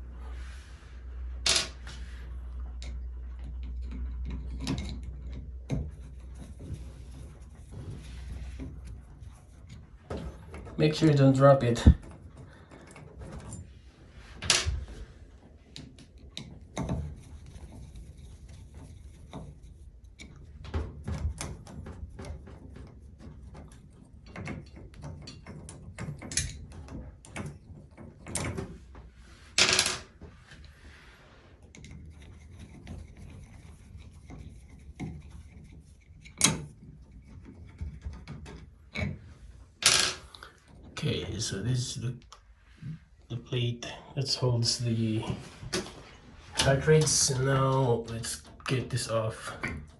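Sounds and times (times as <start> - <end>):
metal parts clicking and knocking: 2.8 - 6.6, 15.7 - 28.7, 31.7 - 39.2.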